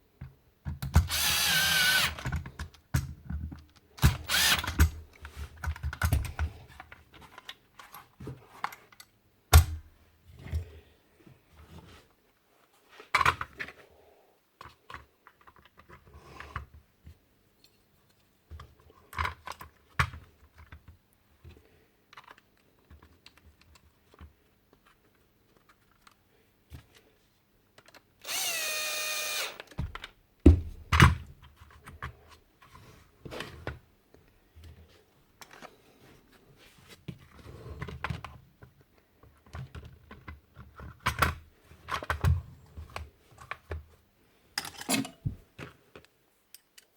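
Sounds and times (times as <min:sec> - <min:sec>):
small power tool whine: 0:01.1 - 0:02.3, 0:04.2 - 0:04.8, 0:28.2 - 0:29.7
tools clicking and knocking: 0:44.6 - 0:45.4, 0:46.5 - 0:46.9.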